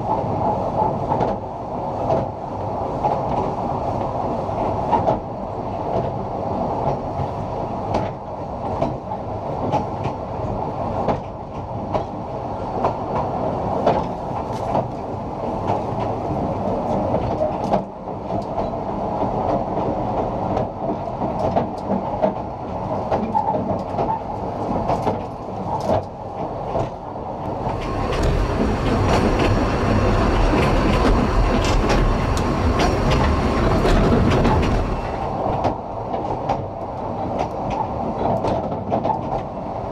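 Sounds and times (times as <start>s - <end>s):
train coach rattling and rumbling: 0.0s - 39.9s
wheels clicking over rail joints: 11.0s - 39.6s.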